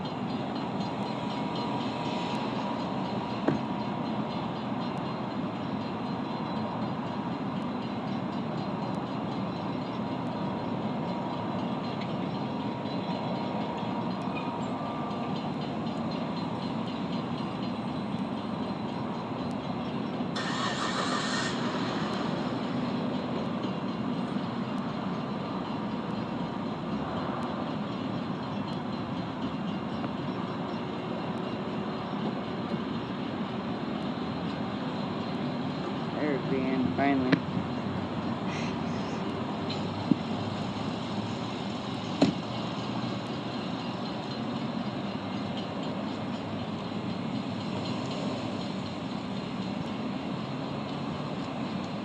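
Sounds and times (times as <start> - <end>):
train wheels rumbling on rail: 0.0 - 52.0
brief high hiss: 20.4 - 22.1.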